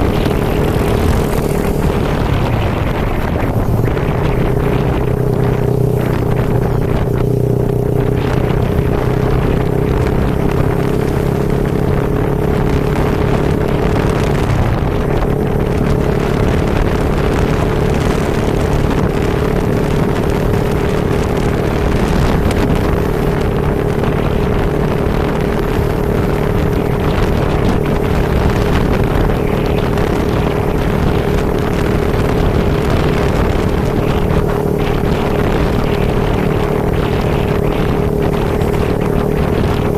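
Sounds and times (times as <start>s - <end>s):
constant hum: 0.0s - 39.9s
motorcycle engine running: 0.0s - 39.9s
wind noise on microphone: 0.0s - 39.9s.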